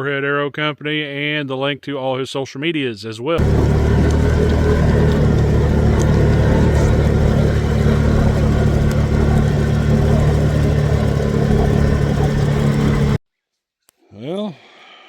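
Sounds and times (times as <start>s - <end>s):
vehicle engine humming: 3.4s - 13.2s.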